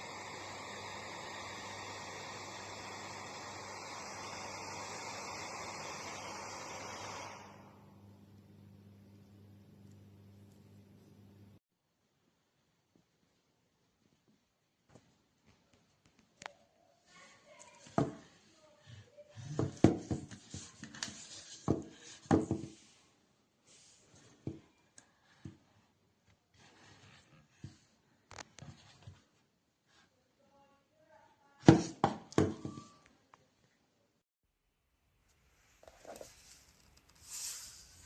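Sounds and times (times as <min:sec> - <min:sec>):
object handling knocks and rubbing: 0:19.6 - 0:22.9.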